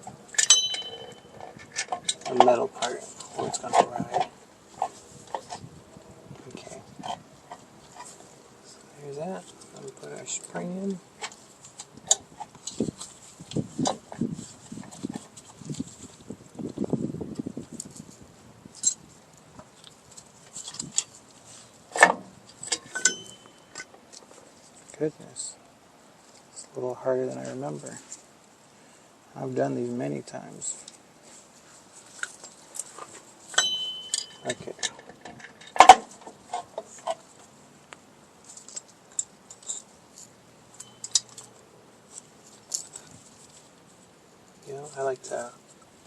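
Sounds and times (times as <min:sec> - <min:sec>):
short metallic ring: 0:00.3 - 0:01.5, 0:22.7 - 0:23.9, 0:33.5 - 0:34.8, 0:40.8 - 0:41.3
metal clank: 0:00.3 - 0:04.3, 0:22.0 - 0:23.9, 0:33.5 - 0:36.4
metal spring clicking and scraping: 0:00.3 - 0:05.7, 0:19.8 - 0:24.3, 0:32.1 - 0:37.3, 0:38.4 - 0:43.6.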